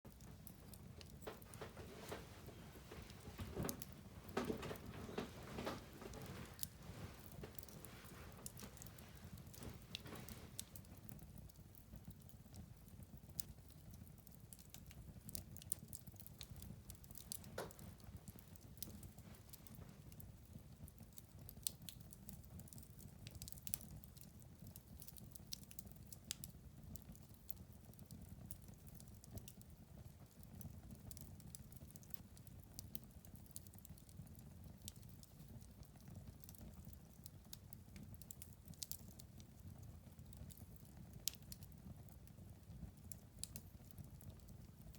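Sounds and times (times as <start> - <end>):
low steady noise: 0.1 - 11.1
fire crackling in a fireplace: 0.1 - 44.9.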